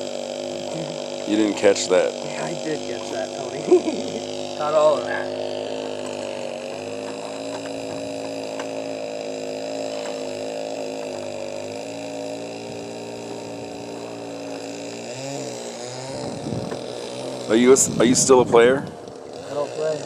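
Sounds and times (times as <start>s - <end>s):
motor droning hum: 0.0s - 20.0s.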